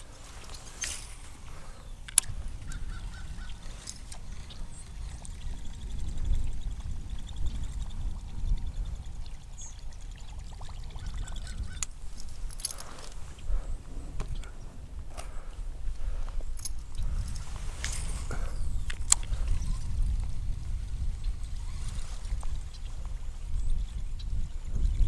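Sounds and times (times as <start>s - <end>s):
faint clicks: 0.0s - 20.3s
wind rumbling on microphone: 0.0s - 25.0s
light water sounds: 3.4s - 14.6s.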